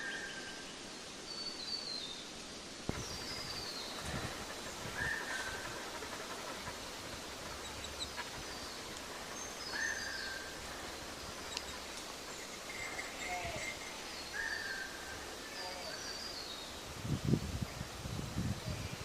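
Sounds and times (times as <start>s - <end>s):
steady outdoor hiss: 0.0s - 19.0s
low bird call: 2.9s - 16.4s.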